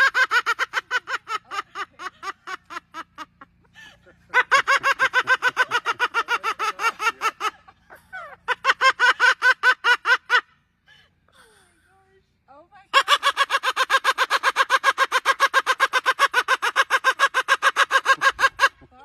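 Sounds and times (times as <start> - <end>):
parrot calling rapidly: 4.3 - 7.6, 12.9 - 18.8.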